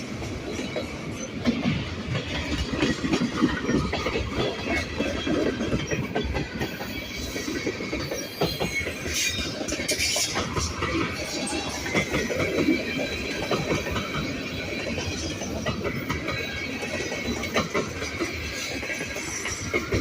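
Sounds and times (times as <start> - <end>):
train cars rolling past: 0.0 - 20.0
wheels clacking over rail joints: 0.0 - 20.0.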